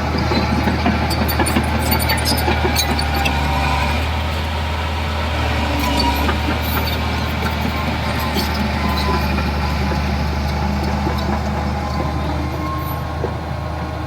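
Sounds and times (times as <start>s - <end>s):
heavy diesel engine running: 0.0s - 14.0s.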